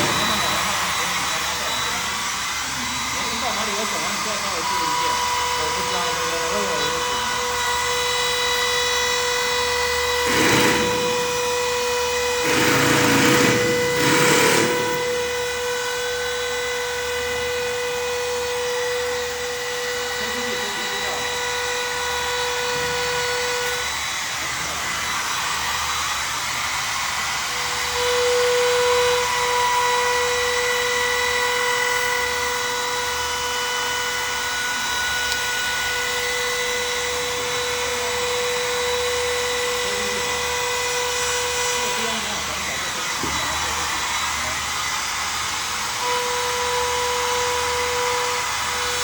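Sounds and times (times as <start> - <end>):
trim router whining: 0.0 - 49.0
rough cutting noise: 10.1 - 15.5.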